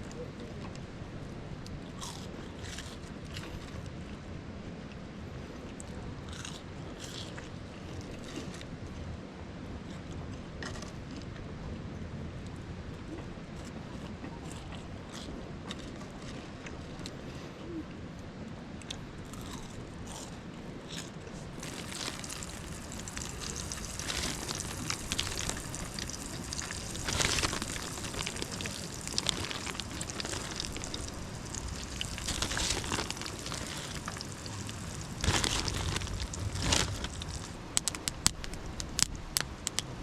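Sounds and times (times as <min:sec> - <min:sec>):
potatoes sizzling in hot oil: 0:21.6 - 0:37.6.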